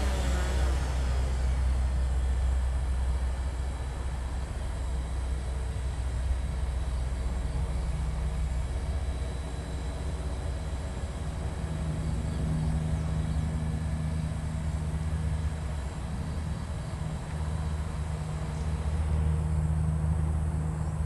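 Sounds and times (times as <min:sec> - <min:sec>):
low rumble: 0:00.0 - 0:09.0
drone propellers humming: 0:00.0 - 0:21.0.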